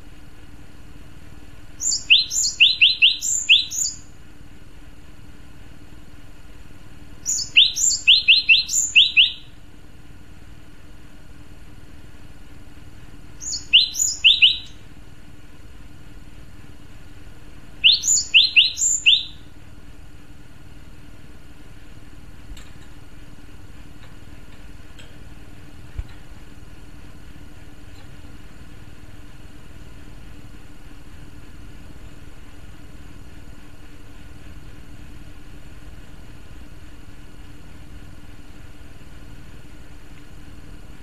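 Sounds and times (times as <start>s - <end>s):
steady low hum: 0.0s - 41.0s
bird calling rising notes: 1.8s - 4.1s, 7.2s - 9.5s, 13.4s - 14.8s, 17.8s - 19.5s.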